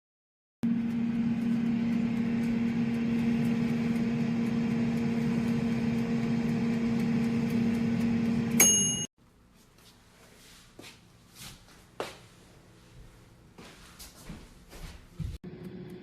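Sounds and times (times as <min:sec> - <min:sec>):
air fryer fan humming: 0:00.6 - 0:09.1, 0:15.4 - 0:16.0
timer bell ding: 0:08.6 - 0:09.1.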